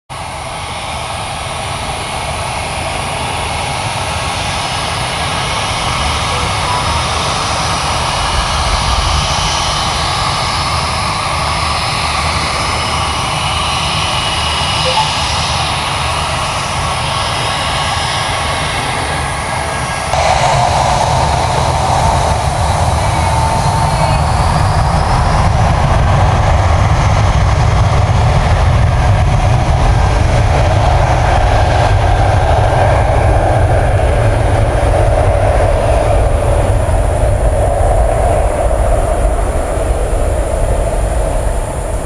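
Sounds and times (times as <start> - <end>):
faint engine whine: 0.1 - 42.0
jet engines roaring: 0.1 - 42.0.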